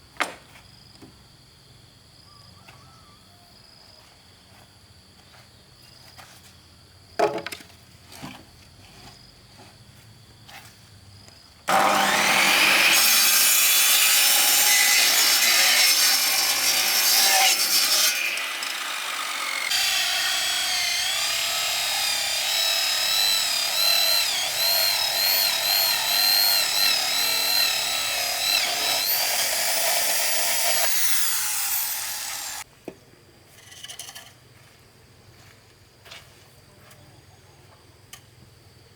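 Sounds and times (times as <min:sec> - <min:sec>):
power saw cutting bamboo: 0:11.7 - 0:32.6.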